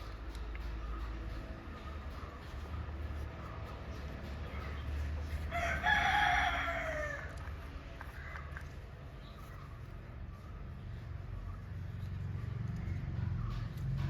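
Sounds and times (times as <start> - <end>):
rooster crowing: 5.5 - 7.4.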